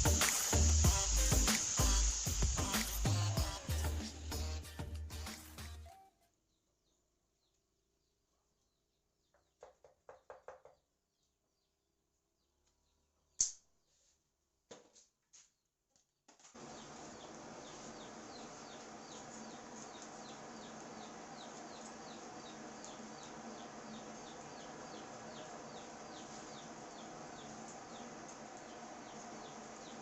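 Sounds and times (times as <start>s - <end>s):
faint hiss: 0.0s - 5.6s
bird chirping: 16.6s - 30.0s.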